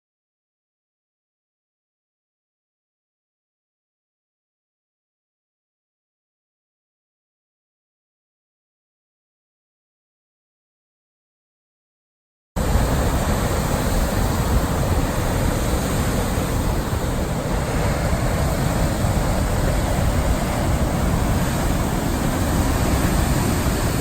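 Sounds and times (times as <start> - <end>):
roar of heavy surf: 12.6 - 24.0
wind buffeting microphone: 12.6 - 24.0.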